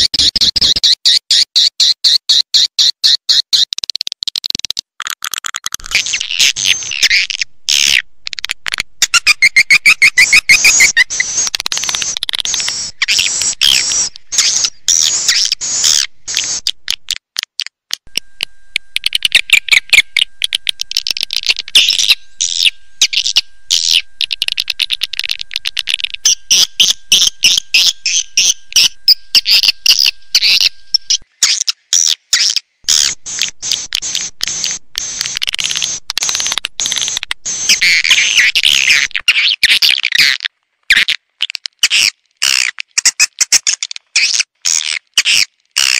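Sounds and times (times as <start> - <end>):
swiftlets twittering and clicking: 3.4 - 39.4.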